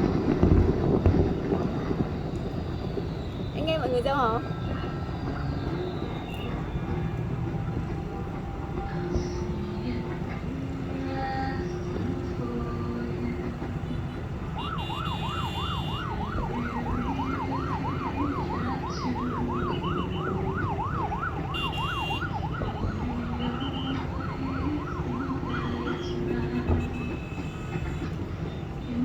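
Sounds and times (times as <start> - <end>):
steady noisy din: 0.0 - 29.0
siren yelping: 0.1 - 10.1, 14.4 - 26.9.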